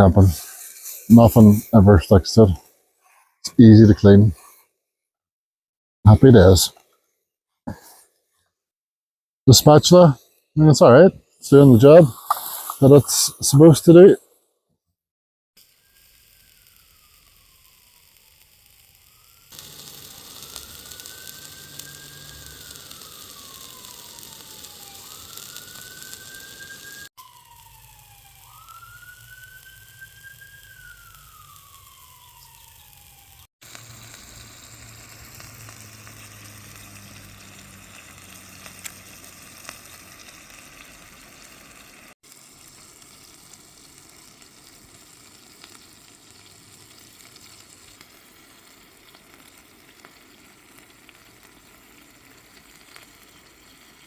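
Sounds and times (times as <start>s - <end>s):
burgers sizzling in a frying pan: 0.3s - 1.7s, 15.6s - 54.0s
distant siren wailing: 15.7s - 39.7s.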